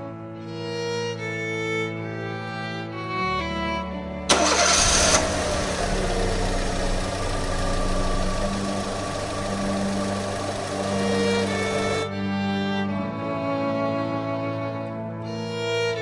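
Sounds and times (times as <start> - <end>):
violin music: 0.0 - 16.0
car engine idling: 4.3 - 12.1
car engine starting: 4.3 - 12.1.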